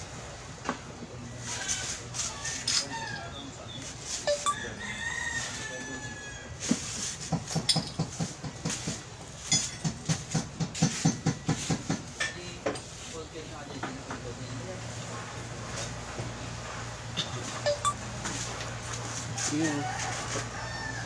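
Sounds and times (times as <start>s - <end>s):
rooster crowing: 4.5s - 6.6s, 19.4s - 21.0s.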